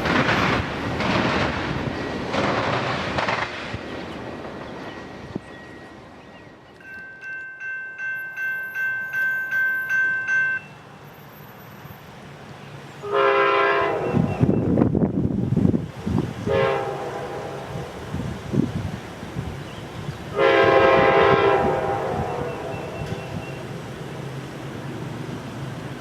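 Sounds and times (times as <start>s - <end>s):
low rumble of moving train: 0.0s - 26.0s
bell ringing: 6.8s - 10.8s
locomotive horn blasts: 13.0s - 14.6s, 16.4s - 17.9s, 20.3s - 23.6s.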